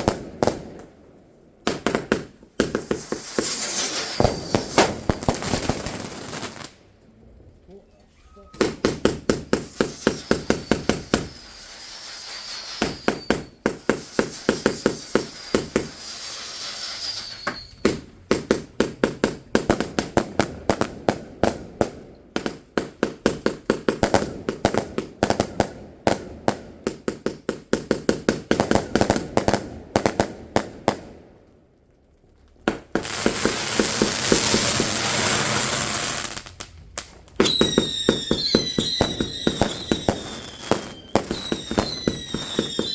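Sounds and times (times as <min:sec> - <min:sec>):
fireworks bangs: 0:00.0 - 0:06.9, 0:08.4 - 0:31.2, 0:32.7 - 0:42.9
dense hissing crackle: 0:01.6 - 0:19.3, 0:32.0 - 0:42.9
falling firework whistles: 0:01.8 - 0:06.7, 0:08.1 - 0:18.7, 0:33.0 - 0:36.6, 0:37.4 - 0:42.9.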